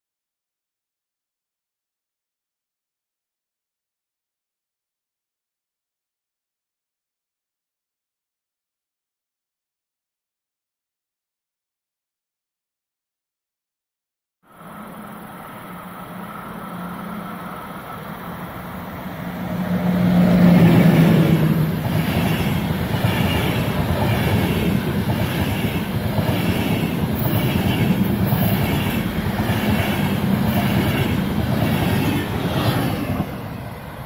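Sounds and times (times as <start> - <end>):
electric locomotive hum: 14.5 - 34.0
train wheel clatter: 20.5 - 33.5.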